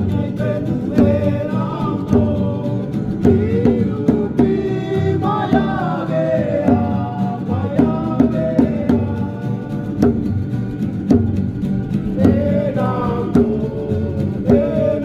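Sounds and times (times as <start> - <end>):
sharp percussive beats: 0.0 - 15.0
voices singing with sliding pitch: 0.0 - 15.0.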